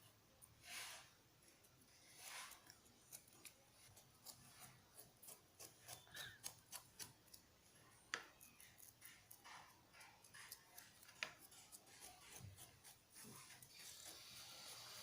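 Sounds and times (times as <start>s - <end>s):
marker pen scribbling: 8.4s - 15.0s.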